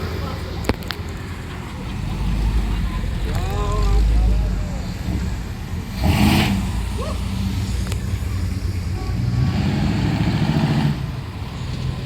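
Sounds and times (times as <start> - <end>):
car engines rumbling past: 0.0 - 12.0
pulsing exhaust rumble: 0.0 - 12.0.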